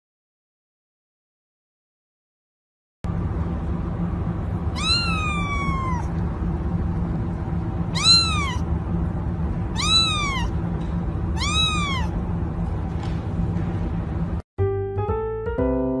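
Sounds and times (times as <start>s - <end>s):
cat meowing: 4.7s - 6.2s, 7.9s - 8.7s, 9.7s - 10.6s, 11.4s - 12.2s.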